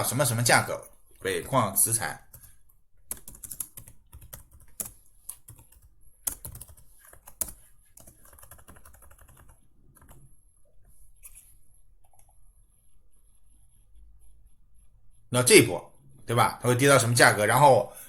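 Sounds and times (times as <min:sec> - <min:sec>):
computer keyboard typing: 0:02.3 - 0:10.3.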